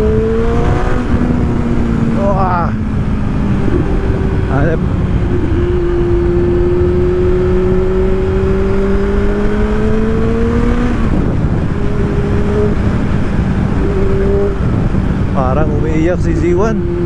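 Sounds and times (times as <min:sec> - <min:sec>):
motorcycle engine revving: 0:00.0 - 0:17.0
wind rumble: 0:00.0 - 0:17.0.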